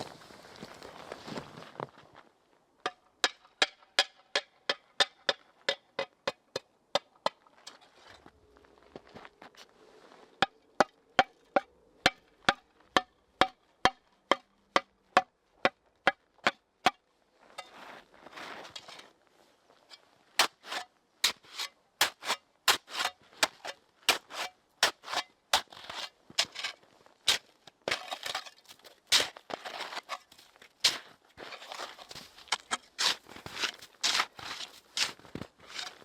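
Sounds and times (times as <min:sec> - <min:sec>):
footsteps: 0:27.3 - 0:36.0.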